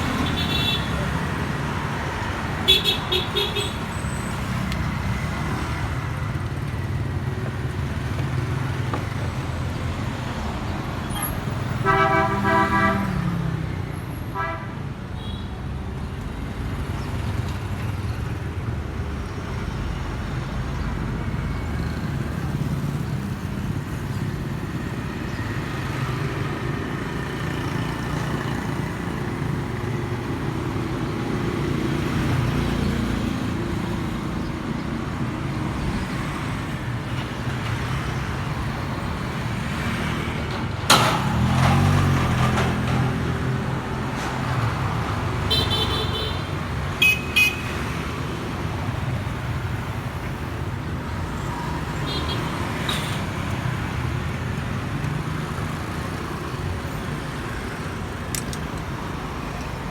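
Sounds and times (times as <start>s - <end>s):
road traffic rumble: 0.0s - 59.9s
vehicle horn honking: 0.2s - 1.1s, 2.7s - 3.8s, 11.2s - 13.2s, 45.5s - 47.8s.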